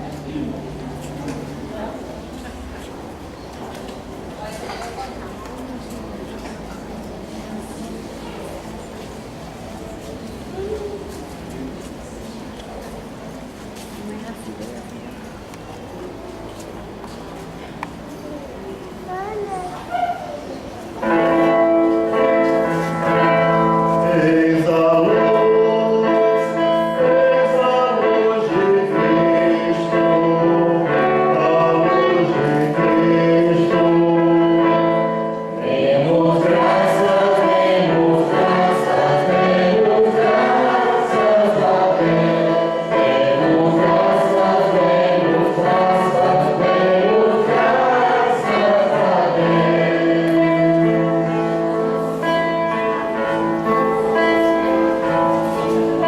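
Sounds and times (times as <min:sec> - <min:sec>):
choir singing a hymn: 0:21.0 - 0:56.0.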